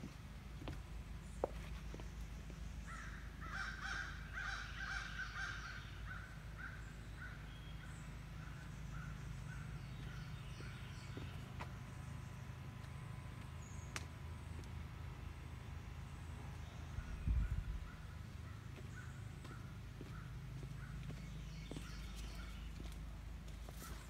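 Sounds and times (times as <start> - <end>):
bird calling: 1.4 - 12.4, 16.8 - 22.9
steady low rumble: 6.3 - 21.6.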